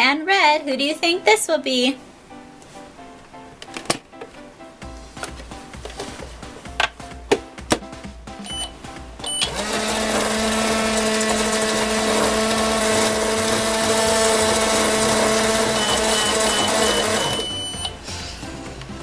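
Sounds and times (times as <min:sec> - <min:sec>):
quick evenly spaced beeps: 0:08.4 - 0:09.5, 0:15.3 - 0:18.0
short beeps: 0:08.4 - 0:09.5, 0:15.6 - 0:18.0
toy microwave electric hum: 0:08.4 - 0:18.0.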